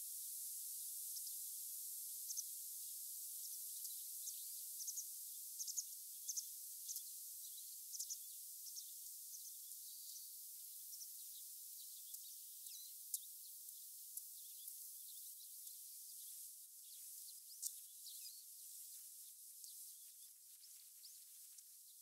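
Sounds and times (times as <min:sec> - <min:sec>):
steady hiss: 0:00.0 - 0:22.0
small birds chirping: 0:00.7 - 0:01.5, 0:02.1 - 0:22.0.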